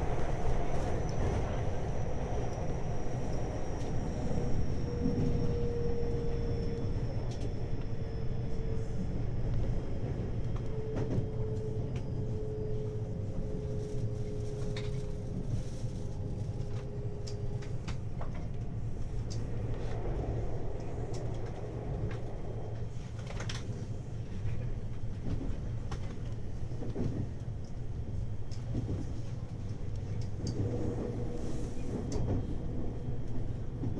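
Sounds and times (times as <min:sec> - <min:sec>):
train wheels rumbling on rail: 0:00.0 - 0:33.9.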